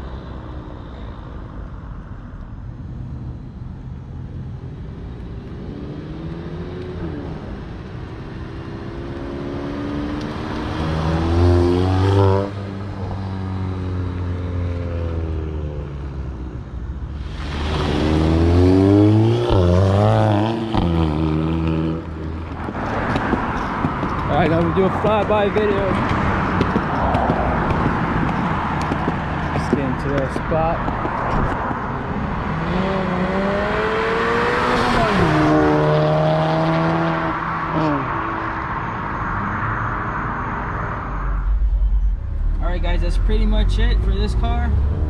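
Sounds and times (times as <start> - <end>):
car engine accelerating hard: 17.4 - 22.3, 32.4 - 38.1.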